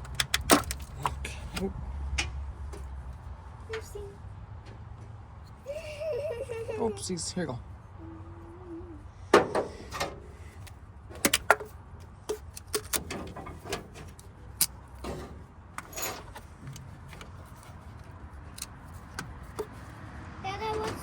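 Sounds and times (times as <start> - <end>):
clicks and knocks of handled parts: 0.0 - 3.8, 9.4 - 20.0.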